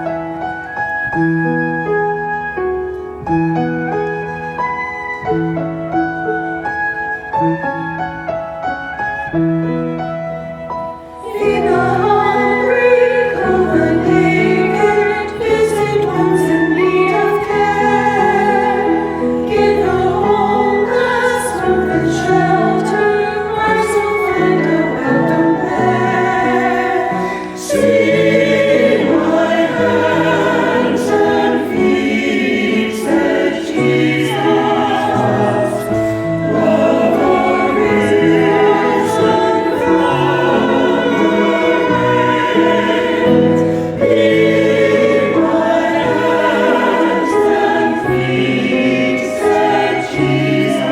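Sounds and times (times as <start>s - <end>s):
keyboard accompaniment: 0.0s - 50.9s
choir singing sacred music: 11.0s - 50.9s.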